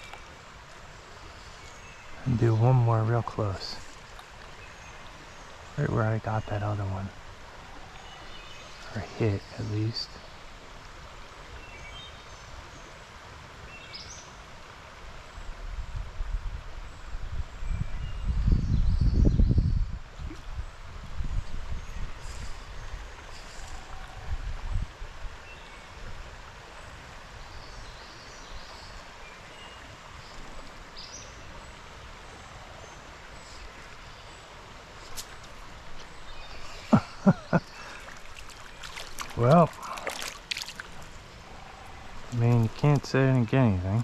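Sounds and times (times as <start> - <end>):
stream water rushing: 0.0 - 17.8, 19.9 - 44.0
wind buffeting microphone: 15.5 - 25.4.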